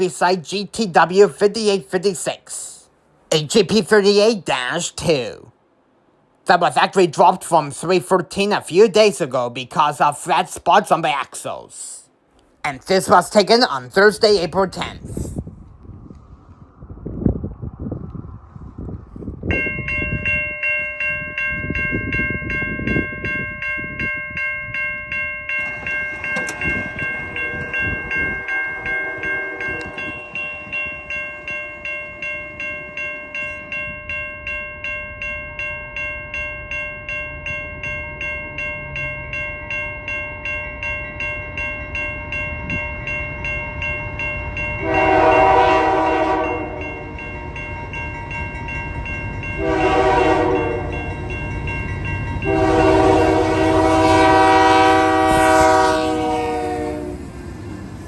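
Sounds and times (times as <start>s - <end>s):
locomotive bell ringing: 0.0s - 2.4s, 19.4s - 58.0s
locomotive air horn blast: 44.8s - 47.1s, 49.6s - 51.0s, 52.4s - 57.2s.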